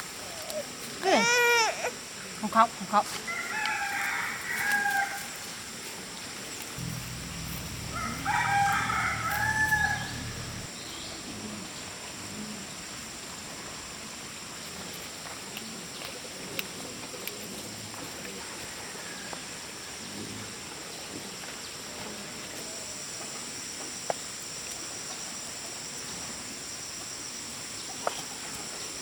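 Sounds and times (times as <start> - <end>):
rooster crowing: 3.3 - 5.4, 6.8 - 10.7.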